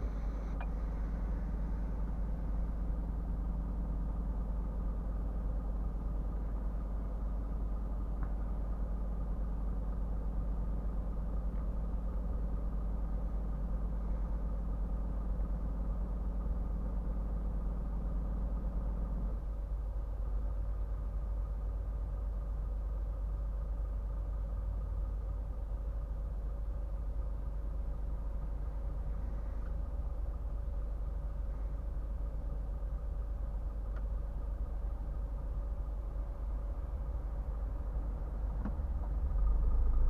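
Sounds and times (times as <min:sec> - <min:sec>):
diesel truck engine droning: 0:00.0 - 0:40.0.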